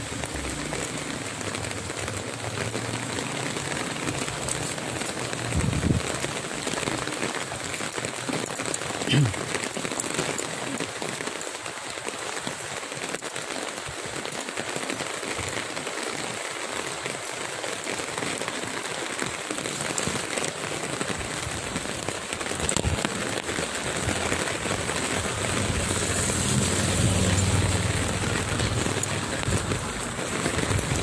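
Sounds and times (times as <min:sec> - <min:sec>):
rain on a wet street: 0:00.0 - 0:31.0.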